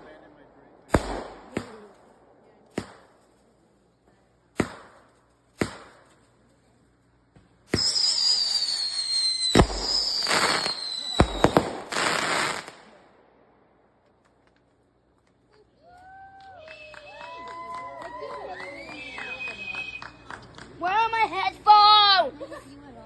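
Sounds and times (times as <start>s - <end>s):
firework bangs: 0.0s - 3.5s, 4.5s - 6.3s, 7.3s - 14.6s
firework hissing spray and whistle: 7.7s - 12.8s.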